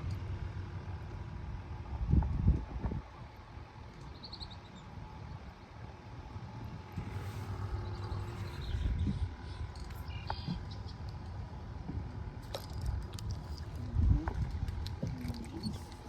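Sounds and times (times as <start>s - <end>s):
wind rumbling on microphone: 1.3s - 4.2s, 6.3s - 16.0s.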